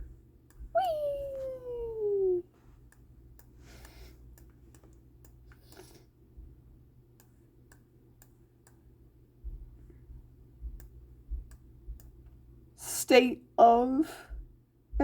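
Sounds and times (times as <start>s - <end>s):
computer mouse clicks: 2.9s - 6.0s, 7.2s - 8.8s.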